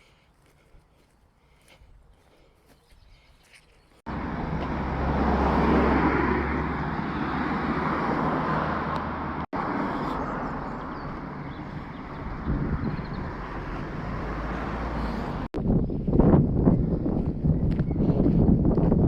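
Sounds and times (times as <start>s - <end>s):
road traffic noise: 4.0s - 15.6s
vehicle passing: 4.1s - 15.5s.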